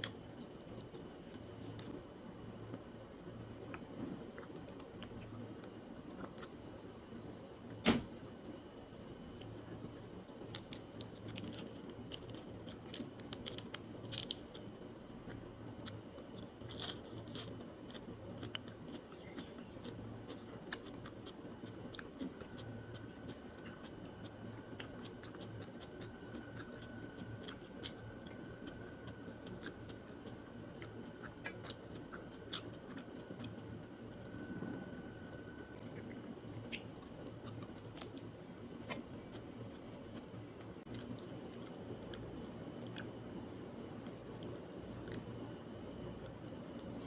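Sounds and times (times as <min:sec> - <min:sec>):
crunchy chewing of greens: 0:00.0 - 0:07.4, 0:08.4 - 0:47.0
soft chewing: 0:00.0 - 0:07.4, 0:08.4 - 0:47.0
faint steady whine: 0:00.0 - 0:47.0.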